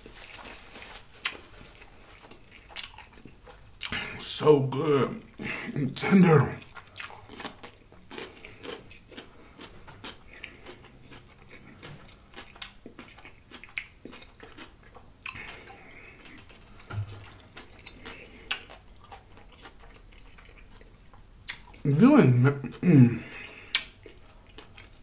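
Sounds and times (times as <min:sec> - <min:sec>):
close chewing of a sandwich: 0:00.0 - 0:04.3, 0:06.5 - 0:21.9, 0:22.6 - 0:25.0
wet mouth smacks: 0:23.7 - 0:24.0
small mouth clicks: 0:23.7 - 0:24.2.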